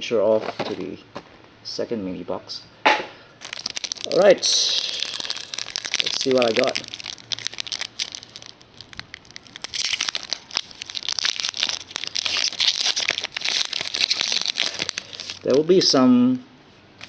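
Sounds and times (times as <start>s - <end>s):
card pack wrappers crinkling: 3.4s - 15.8s.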